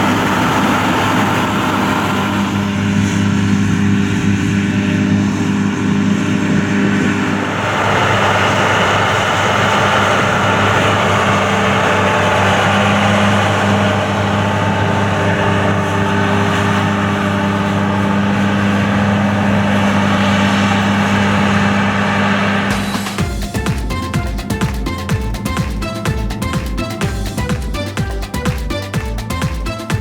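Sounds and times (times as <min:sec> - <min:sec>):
diesel farm machine running: 0:00.0 - 0:30.0
electronic music with a beat: 0:22.7 - 0:30.0.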